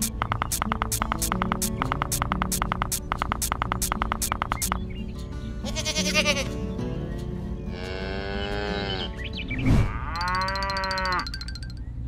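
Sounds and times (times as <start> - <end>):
background music: 0.0 - 12.0
animal bleating: 5.6 - 6.6, 7.7 - 9.2.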